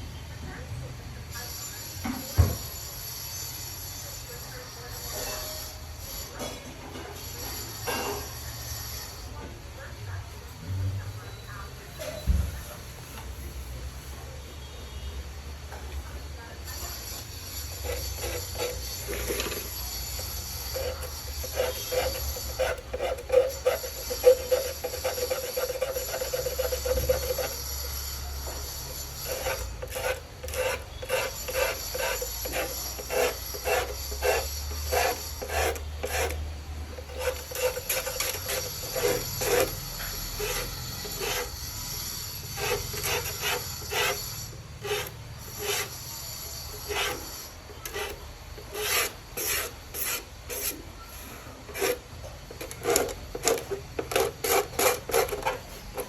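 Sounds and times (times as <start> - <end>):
hand tool scraping a hard surface: 16.7 - 56.0.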